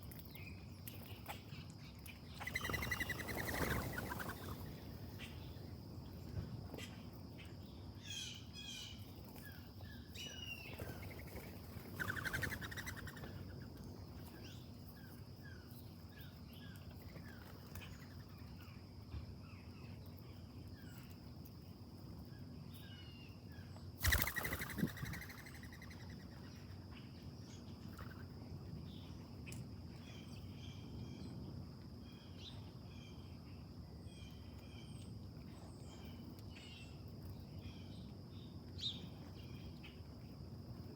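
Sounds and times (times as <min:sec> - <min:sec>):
small birds chirping: 0:00.0 - 0:31.4
high insect drone: 0:02.4 - 0:06.0, 0:10.8 - 0:15.6, 0:24.0 - 0:26.4.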